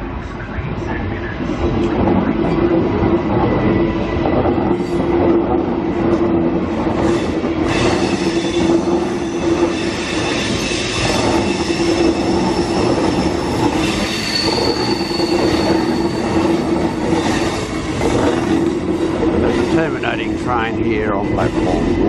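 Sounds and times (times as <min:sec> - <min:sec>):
electric train passing: 0:00.0 - 0:22.0
wheel and rail rumble: 0:00.0 - 0:22.0
high wheel squeal: 0:07.1 - 0:19.9.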